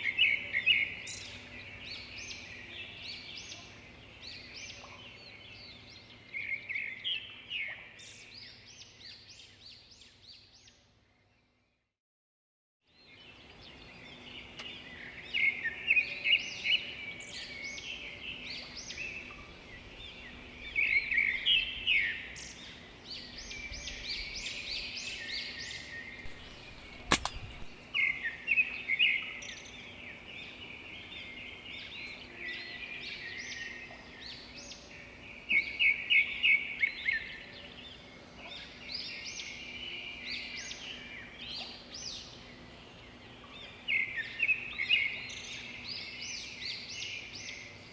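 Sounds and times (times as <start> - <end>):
outdoor background noise: 0.0 - 11.6, 12.9 - 47.9
sharp click: 26.2 - 27.8
birds chirping: 26.3 - 27.8.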